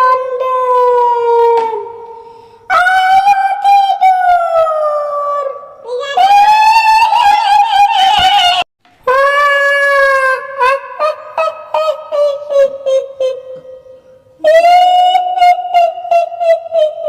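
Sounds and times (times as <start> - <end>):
woman's shrill wailing laugh: 9.1 - 13.6.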